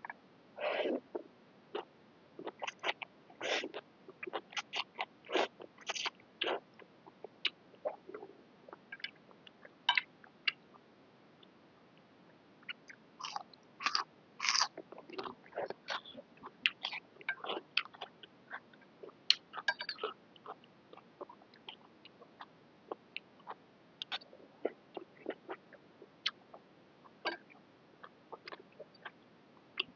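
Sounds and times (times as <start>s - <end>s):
person chewing and smacking: 1.8s - 6.6s, 12.7s - 18.6s, 23.2s - 25.6s.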